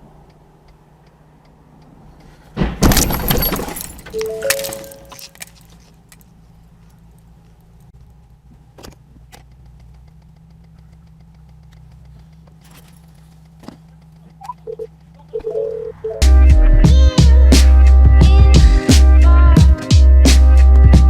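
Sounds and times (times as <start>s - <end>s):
faint clicks: 0.0s - 2.3s, 6.0s - 15.3s
low vehicle engine hum: 0.0s - 21.0s
debris and glass clattering: 2.8s - 6.2s
short tone: 4.1s - 5.4s, 14.4s - 16.4s.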